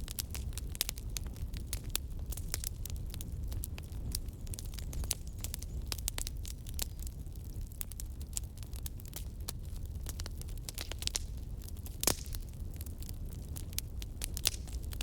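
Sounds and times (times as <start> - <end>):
bonfire crackling and popping: 0.0 - 15.0.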